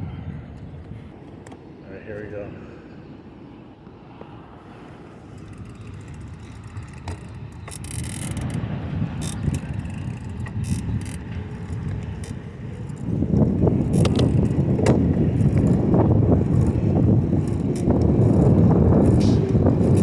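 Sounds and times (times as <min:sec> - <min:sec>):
wind on microphone: 0:00.0 - 0:01.2, 0:04.2 - 0:20.0
bicycle tyres rumbling on pavement: 0:04.8 - 0:20.0
bike clicks and rattles: 0:05.2 - 0:20.0.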